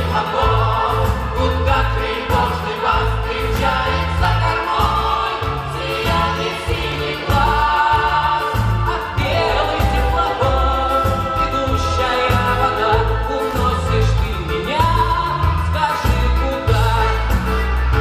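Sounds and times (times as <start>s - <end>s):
steady bass beat: 0.0s - 18.0s
vocal ensemble singing: 0.0s - 18.0s.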